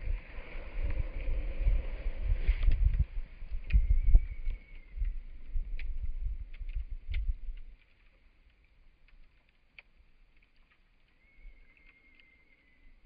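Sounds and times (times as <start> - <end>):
low rumble: 0.0 - 7.3
campfire crackling and popping: 2.6 - 13.0.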